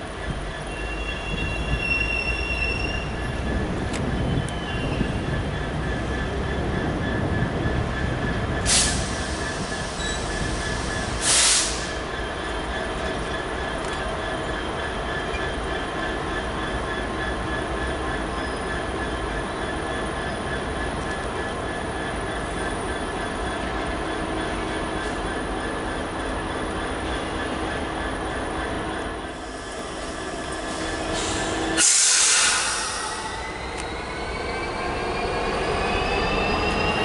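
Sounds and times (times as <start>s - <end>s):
train rolling on rails: 0.0s - 37.0s
short hissing bursts: 31.2s - 33.2s.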